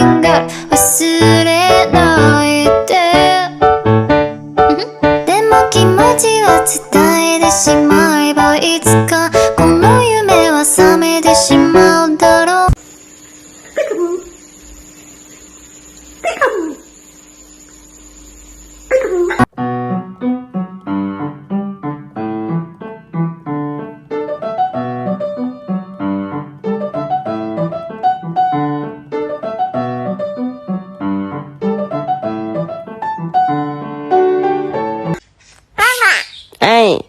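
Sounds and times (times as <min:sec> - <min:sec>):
piano music: 0:00.0 - 0:12.8, 0:19.5 - 0:35.2.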